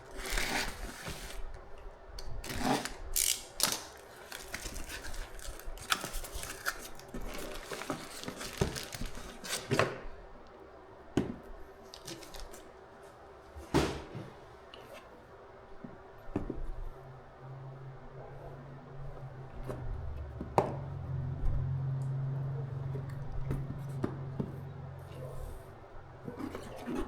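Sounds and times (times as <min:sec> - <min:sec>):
packaging rustling and crinkling: 0:00.0 - 0:01.6, 0:02.4 - 0:10.0, 0:11.9 - 0:12.7.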